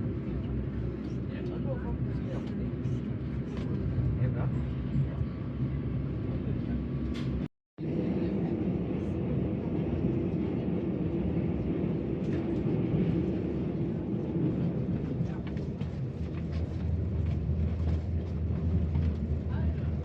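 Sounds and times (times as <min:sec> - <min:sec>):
train rumbling inside carriage: 0:00.0 - 0:20.0.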